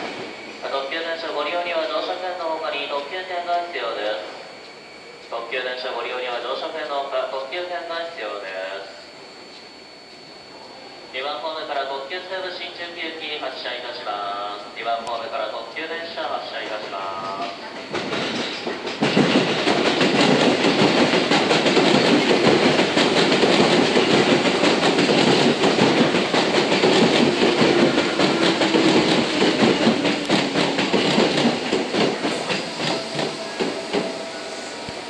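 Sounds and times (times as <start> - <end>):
train wheels clattering over rail joints: 16.8 - 34.2.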